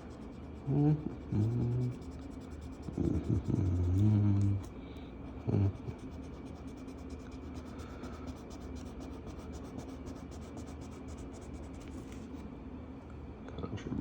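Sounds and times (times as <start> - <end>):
marker scribbling on paper: 0.0 - 4.2, 5.7 - 12.2.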